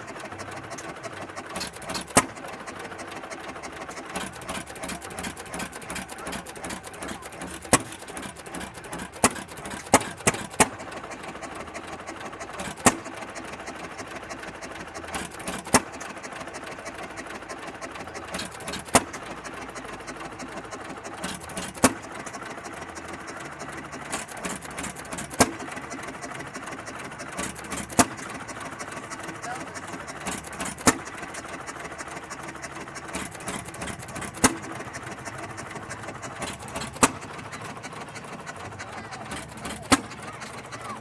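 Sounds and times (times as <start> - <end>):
old engine running: 0.0 - 41.0
loud engine pops: 1.5 - 2.4, 4.0 - 10.9, 12.6 - 13.4, 33.1 - 37.8, 39.2 - 41.0.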